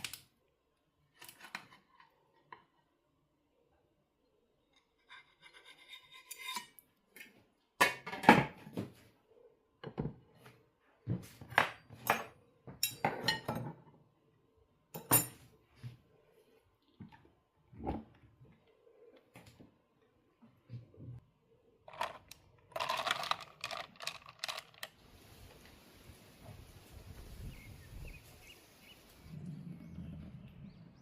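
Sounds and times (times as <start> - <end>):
dishes and cutlery clinking: 11.9 - 13.9, 15.0 - 15.5.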